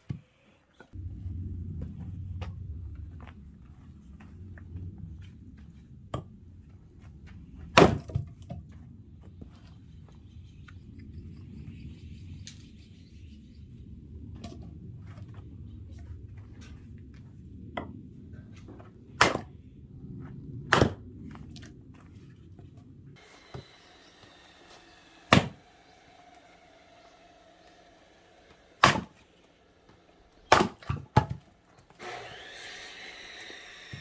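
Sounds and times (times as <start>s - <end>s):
low background rumble: 0.9s - 31.9s
axe splitting firewood: 7.7s - 8.6s, 19.2s - 19.5s, 20.7s - 21.0s, 23.2s - 29.3s, 30.0s - 34.0s.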